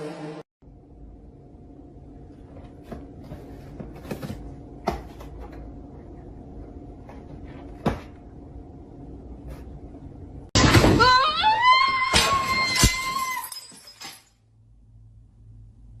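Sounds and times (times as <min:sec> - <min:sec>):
low hum: 0:00.0 - 0:10.5, 0:14.4 - 0:16.0.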